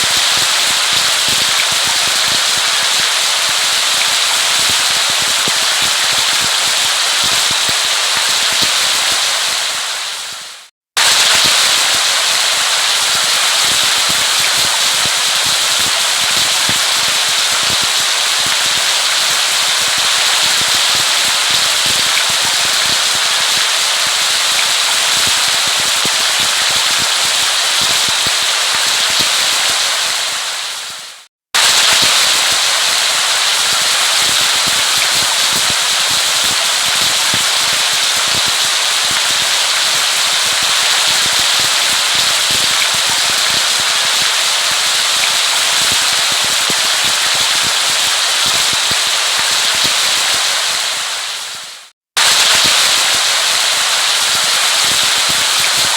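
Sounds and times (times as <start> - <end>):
heavy rain: 0.0 - 55.9.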